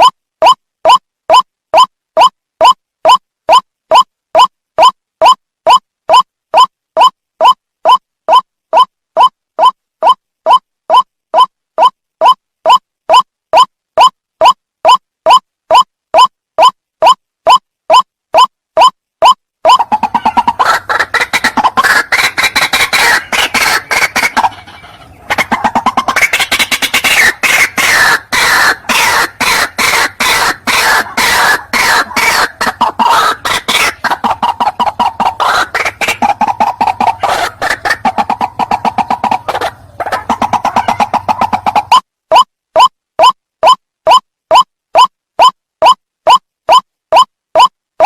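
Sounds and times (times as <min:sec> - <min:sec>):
waterhens calling: 0:19.7 - 0:42.0.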